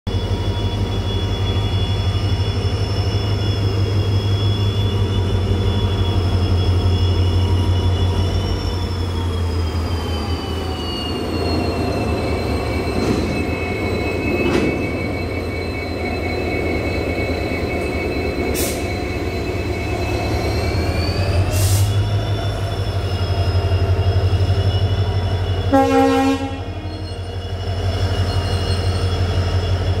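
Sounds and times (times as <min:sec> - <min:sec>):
freight train rumbling past: 0:00.1 - 0:30.0
train wheel squeal: 0:00.1 - 0:30.0
train horn blast: 0:25.7 - 0:26.8.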